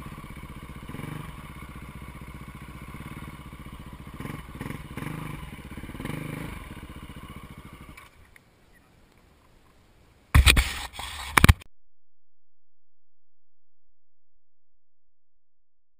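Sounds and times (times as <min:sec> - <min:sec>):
dirt bike engine running: 0:00.0 - 0:08.2.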